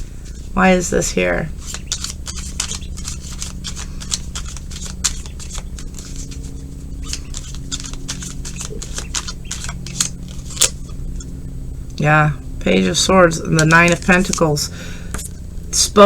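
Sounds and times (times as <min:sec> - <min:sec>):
steady low hum: 0:00.0 - 0:16.0
cards being shuffled: 0:01.5 - 0:11.3, 0:13.3 - 0:15.3.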